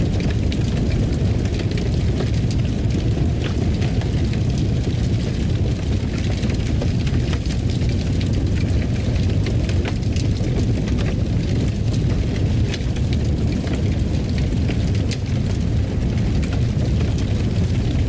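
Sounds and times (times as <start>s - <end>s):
fire crackling and popping: 0.0s - 18.0s
fire low rumble: 0.0s - 18.0s.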